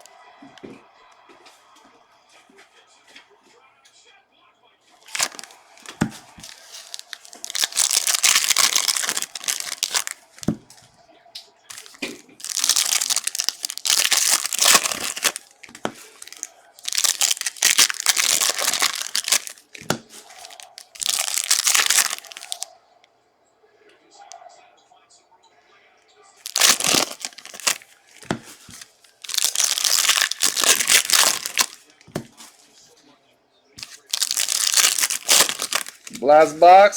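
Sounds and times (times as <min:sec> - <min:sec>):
plastic packaging crinkling and tearing: 0:05.0 - 0:10.6, 0:11.7 - 0:22.7, 0:26.4 - 0:32.7, 0:33.8 - 0:36.8.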